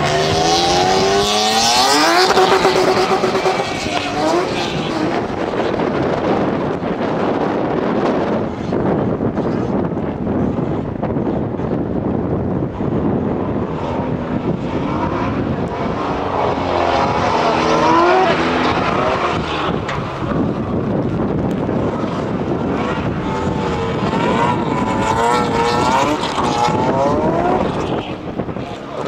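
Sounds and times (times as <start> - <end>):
car engine revving hard: 0.0 - 6.6, 13.4 - 29.0.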